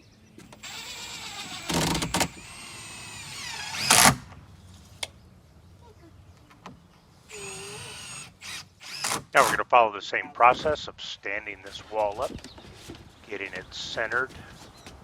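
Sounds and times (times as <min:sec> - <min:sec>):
cordless drill driving screws: 0:00.4 - 0:04.3, 0:07.3 - 0:09.6.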